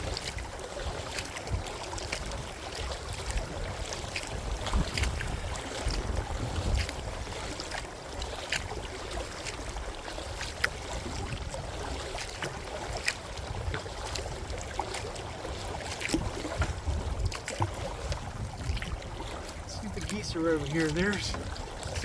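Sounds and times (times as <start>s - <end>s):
wind on microphone: 0.0s - 7.7s, 10.6s - 22.0s
paddle splashing water: 0.0s - 22.0s
water drips: 15.8s - 22.0s.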